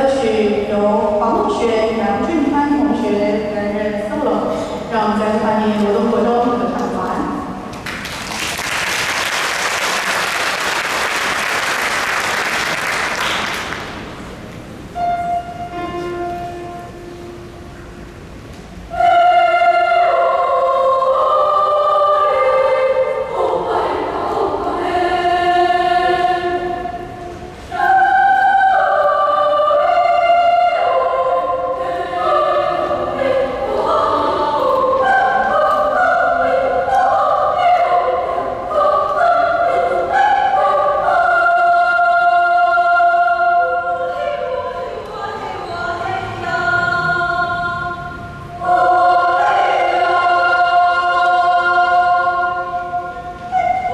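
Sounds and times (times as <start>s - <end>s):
choir singing: 18.8s - 53.9s.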